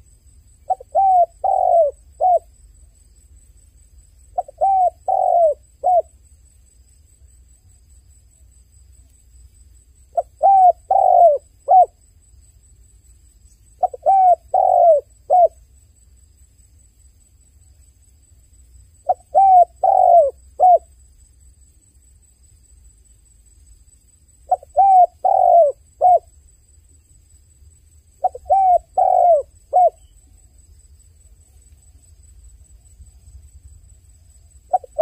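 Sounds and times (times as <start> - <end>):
dove cooing: 0.6 - 2.5, 4.4 - 6.1, 10.1 - 12.0, 13.8 - 15.6, 19.0 - 20.9, 24.5 - 26.3, 28.2 - 30.1, 34.7 - 35.0.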